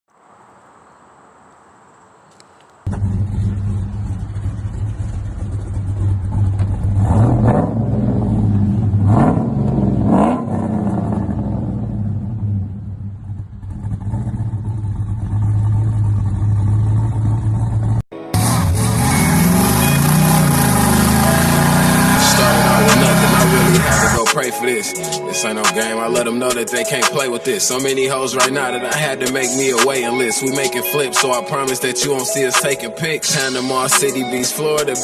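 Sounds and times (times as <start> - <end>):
car engine idling and revving: 2.9 - 24.2.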